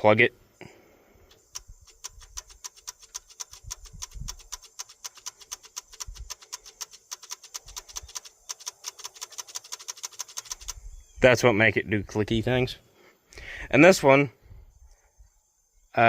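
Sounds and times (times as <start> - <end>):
rapid electrical clicking: 1.3 - 10.8.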